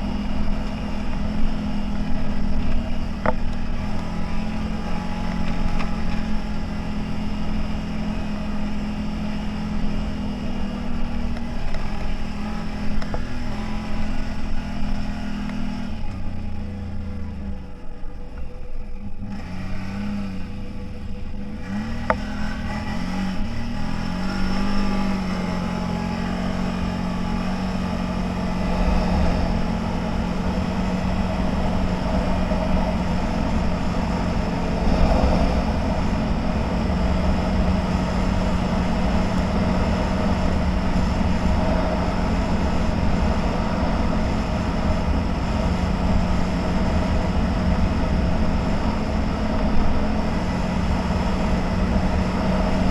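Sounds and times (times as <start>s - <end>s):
low rumble: 0.0s - 52.9s
off-road vehicle engine running: 0.0s - 52.9s.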